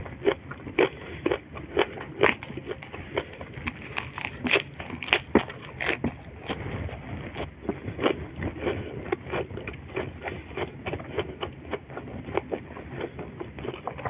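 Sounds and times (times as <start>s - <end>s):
lettuce crunching: 0.0s - 14.0s.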